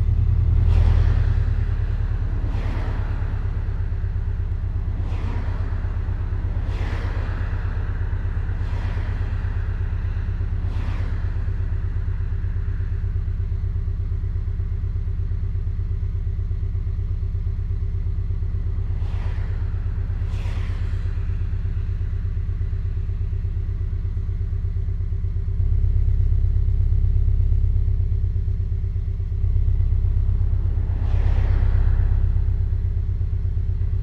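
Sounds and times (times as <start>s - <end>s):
car engine rumbling: 0.0s - 34.0s
short whooshes: 0.5s - 12.9s, 18.7s - 24.8s, 29.4s - 34.0s.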